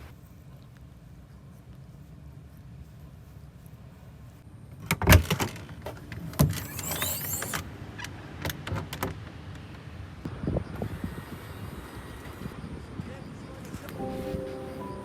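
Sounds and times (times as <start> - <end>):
short rasping slide: 6.6 - 7.6.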